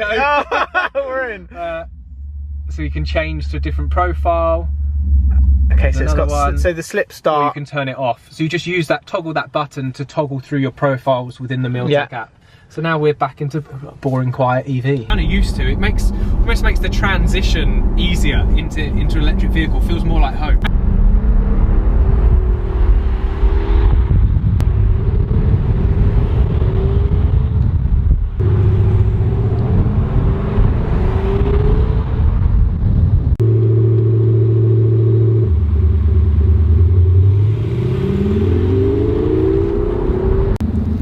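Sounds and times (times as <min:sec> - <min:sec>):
simulated engine exhaust from speakers: 0:01.4 - 0:06.9, 0:15.1 - 0:26.5, 0:32.4 - 0:41.0.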